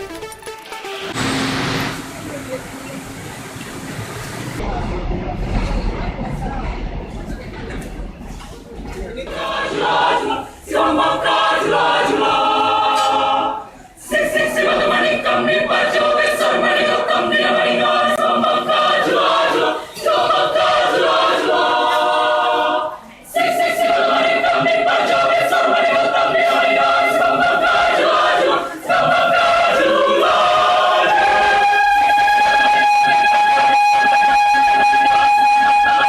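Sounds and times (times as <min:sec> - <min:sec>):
choir singing a cappella: 0:09.3 - 0:36.0.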